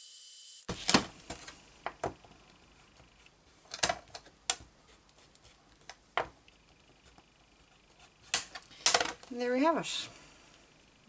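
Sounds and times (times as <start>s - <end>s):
heat gun blowing: 0.0s - 0.8s.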